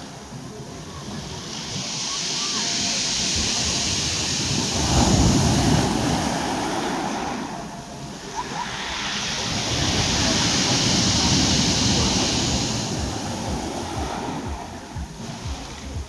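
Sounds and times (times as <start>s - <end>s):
sea wave breaking: 0.0s - 16.0s
wind rumble on microphone: 9.4s - 16.0s.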